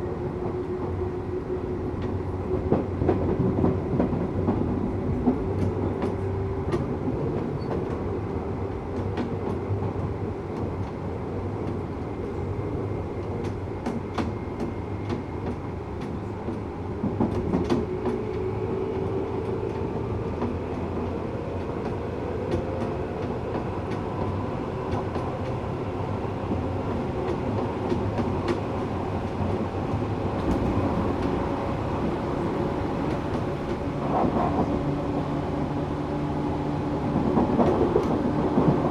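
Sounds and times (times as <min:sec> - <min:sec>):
wheel and rail rumble: 0:00.1 - 0:38.9
traction motor hum: 0:30.4 - 0:34.0.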